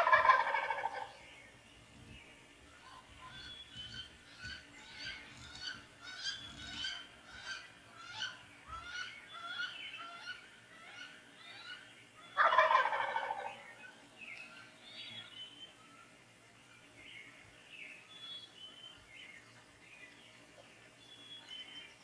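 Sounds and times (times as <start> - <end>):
turkey gobbling: 0.0 - 1.2, 12.4 - 13.8
songbirds chirping: 0.0 - 22.0.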